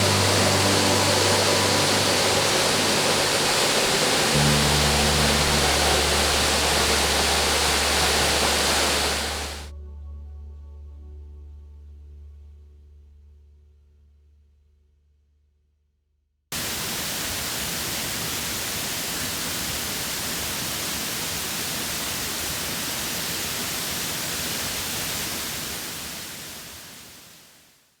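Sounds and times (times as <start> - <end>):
waterfall rushing: 0.0 - 9.7, 16.6 - 27.4.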